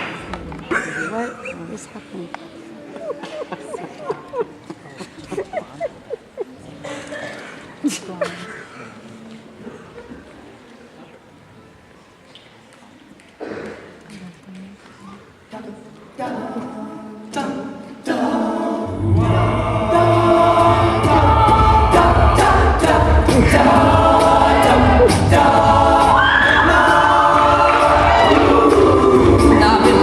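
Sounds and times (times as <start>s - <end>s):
a cappella group singing: 15.5s - 30.0s.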